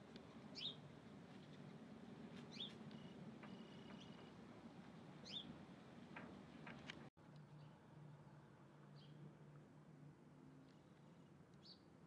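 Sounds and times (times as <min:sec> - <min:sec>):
faint bird chirps: 0:02.5 - 0:04.4.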